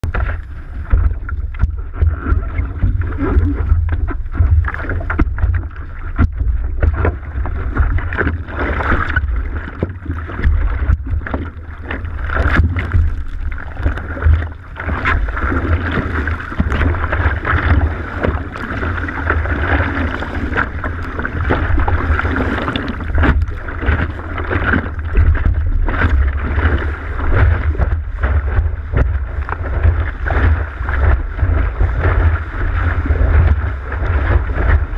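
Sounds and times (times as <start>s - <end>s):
water rushing past board: 0.0s - 34.9s.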